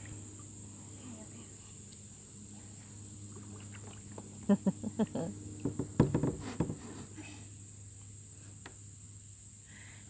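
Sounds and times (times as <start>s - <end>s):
insects droning: 0.0s - 10.0s
short knocks and taps: 5.6s - 6.8s.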